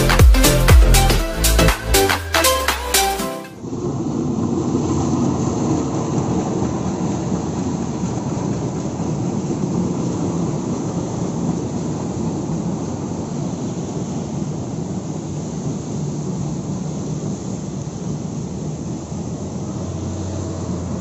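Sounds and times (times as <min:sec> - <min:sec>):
music: 0:00.0 - 0:03.6
train wheels rumbling on rails: 0:03.7 - 0:21.0.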